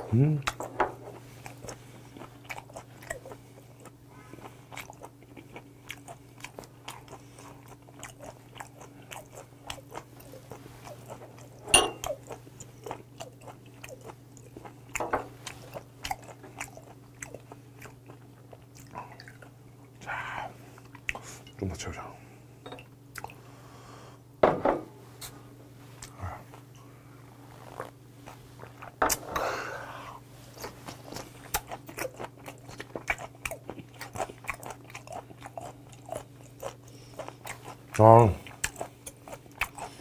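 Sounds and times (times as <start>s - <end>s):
person chewing: 0.0s - 20.0s, 23.1s - 23.4s, 27.4s - 29.2s, 30.5s - 40.0s.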